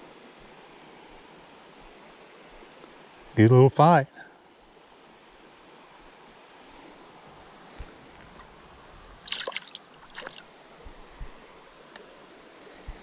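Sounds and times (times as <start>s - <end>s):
creek water running: 0.0s - 13.0s
sharp splashing: 9.2s - 10.5s.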